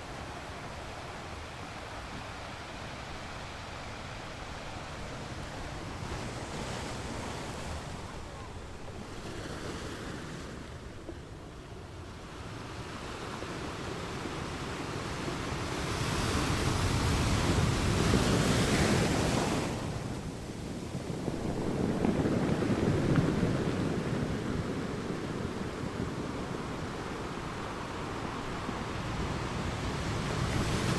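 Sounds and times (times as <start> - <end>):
sea waves breaking ashore: 0.0 - 30.9
wind on microphone: 15.9 - 30.9.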